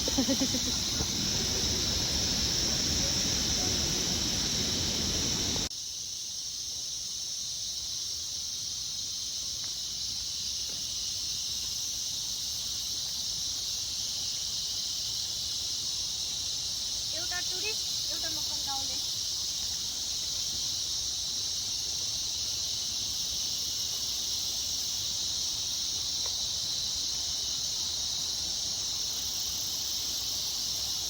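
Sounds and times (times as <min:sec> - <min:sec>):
low wind rumble: 0:00.0 - 0:05.7
insect chorus buzzing: 0:00.0 - 0:31.0.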